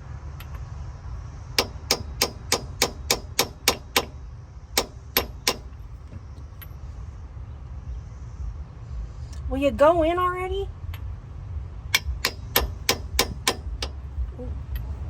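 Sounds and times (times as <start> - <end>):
hammer clanging on metal: 12.0 - 14.0.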